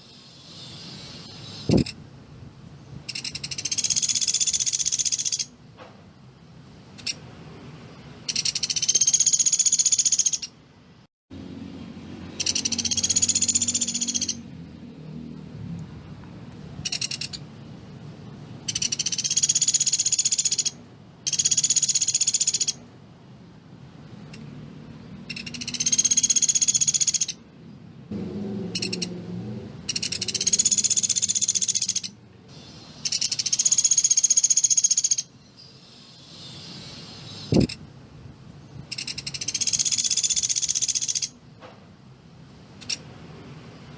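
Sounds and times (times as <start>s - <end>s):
bird calling in high trills: 3.1s - 5.5s, 8.3s - 10.6s, 12.3s - 14.4s, 18.7s - 22.8s, 25.3s - 27.4s, 29.9s - 37.8s, 38.9s - 41.4s.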